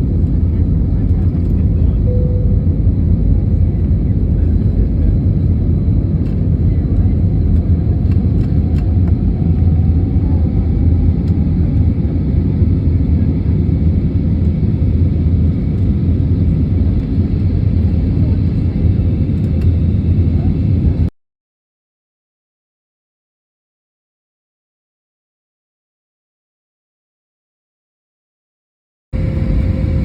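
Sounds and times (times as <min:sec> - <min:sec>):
airplane cabin rumble: 0:00.0 - 0:21.1, 0:29.2 - 0:30.0.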